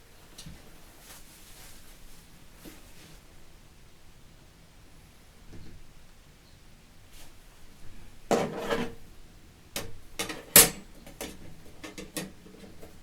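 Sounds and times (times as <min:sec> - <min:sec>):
metal scraping and rattling: 0:08.3 - 0:09.0, 0:09.8 - 0:13.0
sharp metal clanks: 0:09.8 - 0:12.3.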